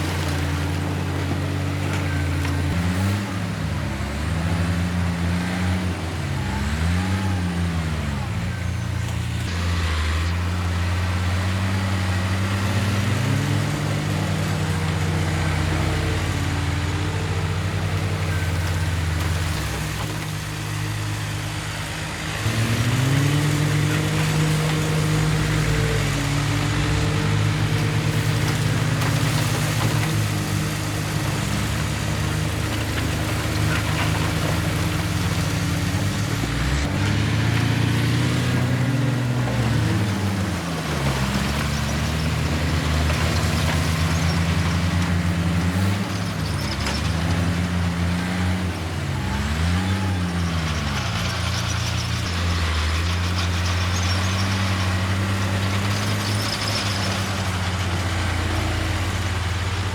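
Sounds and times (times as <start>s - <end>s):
construction machine diesel engine: 0.0s - 59.9s.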